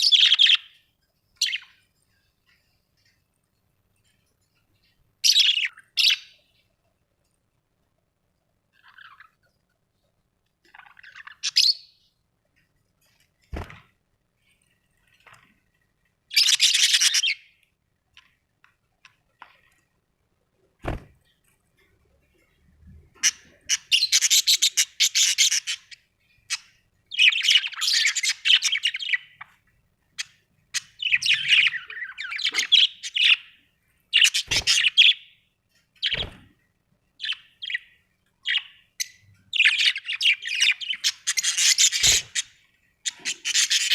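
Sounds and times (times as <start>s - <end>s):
budgerigars chirping and chattering: 0.0s - 0.8s, 1.4s - 1.8s, 5.2s - 6.5s, 8.8s - 9.4s, 10.7s - 12.1s, 16.3s - 17.5s, 23.1s - 29.5s, 30.2s - 35.4s, 37.2s - 43.9s.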